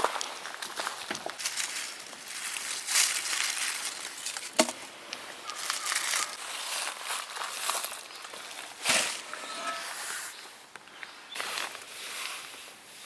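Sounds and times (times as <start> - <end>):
wood rustling and scraping: 0.6 - 10.6.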